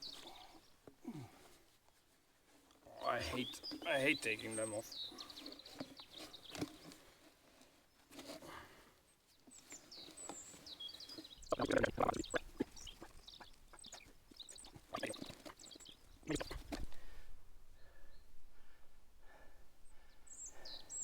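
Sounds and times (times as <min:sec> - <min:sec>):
birds chirping: 0:00.0 - 0:01.5, 0:02.8 - 0:17.0, 0:19.8 - 0:21.0.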